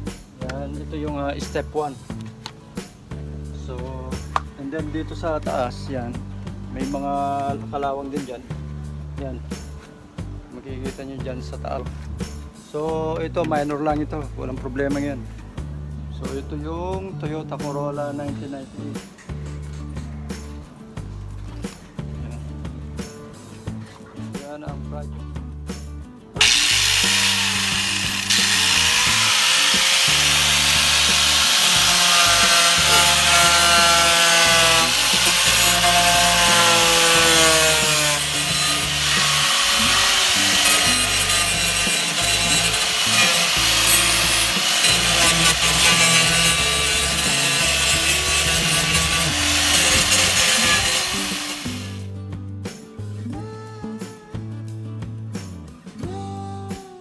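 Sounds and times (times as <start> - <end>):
background music with bass: 0.0 - 57.0
power grinder grinding metal: 26.4 - 52.1.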